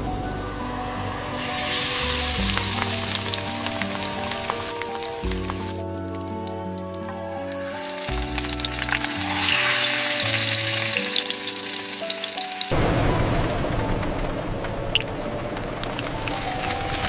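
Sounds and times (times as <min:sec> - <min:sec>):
steady low rumble: 0:00.0 - 0:05.8
soft background music: 0:00.0 - 0:17.0
food sizzling in a hot pan: 0:01.3 - 0:12.7, 0:16.0 - 0:17.0.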